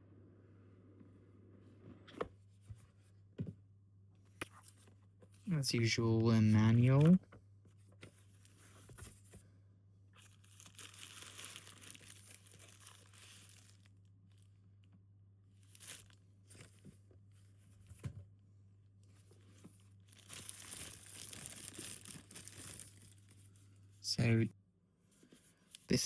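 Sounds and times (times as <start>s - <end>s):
low steady hum: 0.0s - 26.0s
paper and plastic crinkling: 10.2s - 14.4s, 15.6s - 17.0s, 19.1s - 23.7s.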